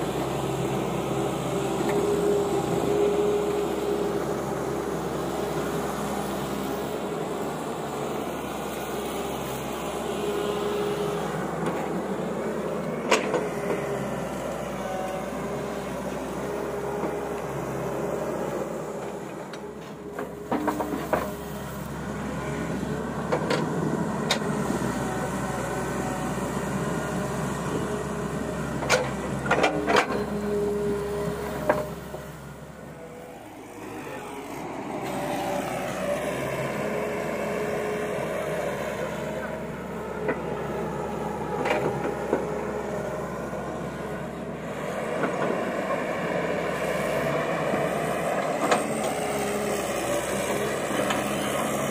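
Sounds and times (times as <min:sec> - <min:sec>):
excavator engine and hydraulics: 0:00.0 - 0:51.9.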